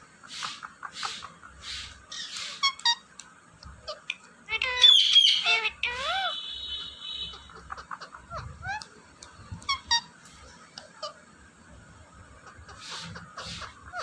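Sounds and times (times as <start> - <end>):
parrot hissing: 0.2 - 3.0, 4.6 - 6.5, 12.7 - 14.0
parrot squawking and whistling: 0.4 - 3.0, 3.9 - 7.6, 9.7 - 10.1.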